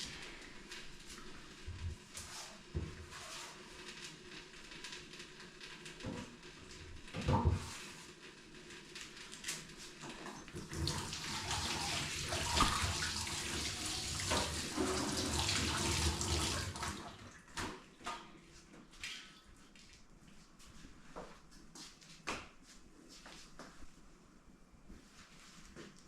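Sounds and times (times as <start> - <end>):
water running from tap into sink: 10.0 - 17.4.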